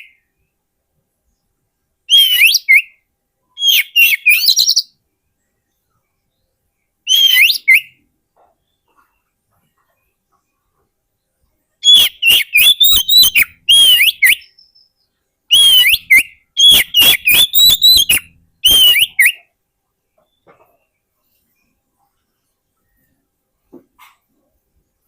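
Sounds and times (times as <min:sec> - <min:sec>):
bird whistling song: 0:02.1 - 0:05.0, 0:07.0 - 0:08.0, 0:11.8 - 0:19.6.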